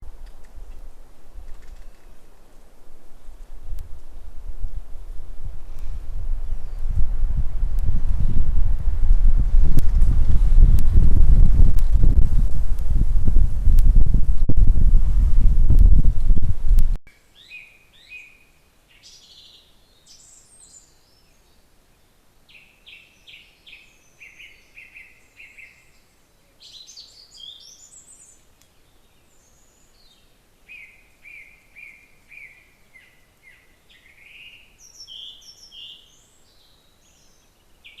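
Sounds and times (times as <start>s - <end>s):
small birds singing: 1.5s - 2.3s, 5.8s - 7.0s, 17.2s - 38.0s.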